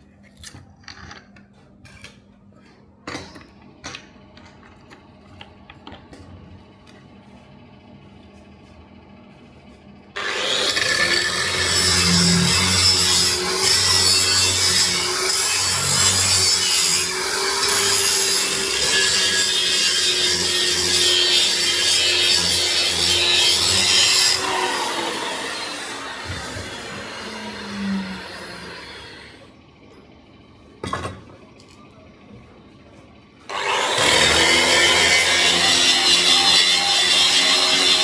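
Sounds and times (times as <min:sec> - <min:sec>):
grinder rasping on steel: 0:10.2 - 0:29.4, 0:33.5 - 0:38.0.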